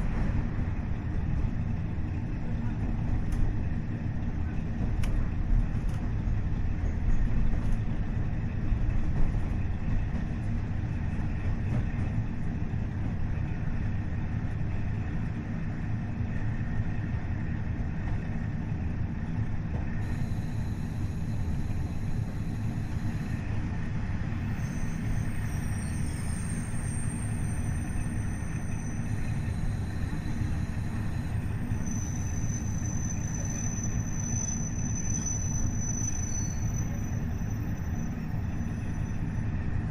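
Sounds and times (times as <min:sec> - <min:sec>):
diesel railcar engine rumble: 0:00.0 - 0:39.9
high-pitched wheel squeals: 0:20.0 - 0:23.8, 0:24.4 - 0:39.6.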